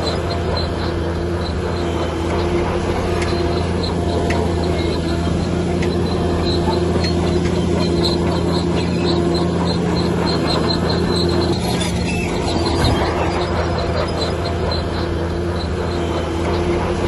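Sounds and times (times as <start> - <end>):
bulldozer diesel engine humming: 0.0 - 17.0
short high squeaks: 0.0 - 17.0.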